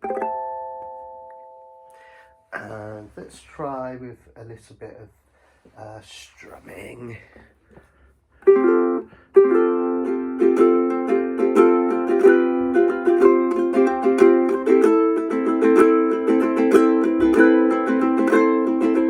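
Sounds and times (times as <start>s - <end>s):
ukulele strummed: 0.0s - 2.9s, 8.4s - 19.0s.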